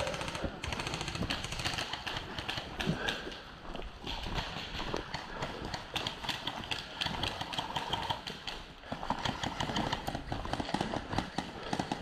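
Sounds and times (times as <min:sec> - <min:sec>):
airsoft guns firing bursts: 0:00.0 - 0:03.4, 0:04.1 - 0:12.0.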